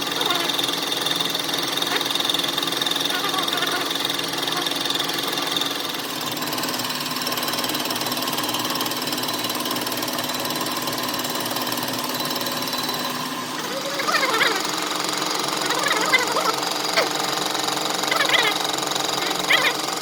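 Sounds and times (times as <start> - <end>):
wavy pitched call: 0.0 - 0.6, 3.0 - 4.8, 13.6 - 20.0
machine rattling: 0.0 - 20.0.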